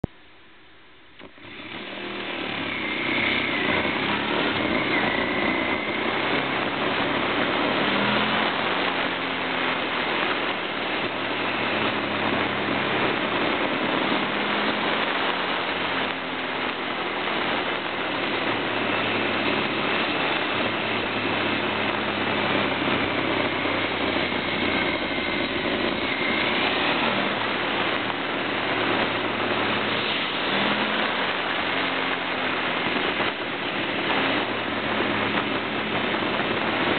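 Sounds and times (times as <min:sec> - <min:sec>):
motorcycle engine revving: 0:01.2 - 0:36.9
wind rush on microphone: 0:01.2 - 0:36.9.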